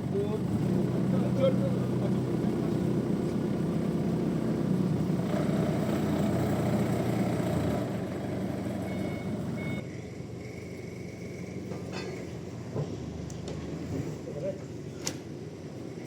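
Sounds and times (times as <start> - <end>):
heavy engine running: 0.0 - 16.0
short high beeps: 8.9 - 9.8.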